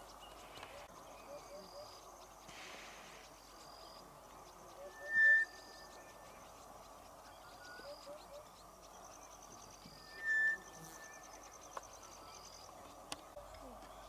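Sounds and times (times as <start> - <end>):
chorus of bird chirps and trills: 0.0 - 14.0
bird whistled note: 4.8 - 6.1, 9.9 - 11.2.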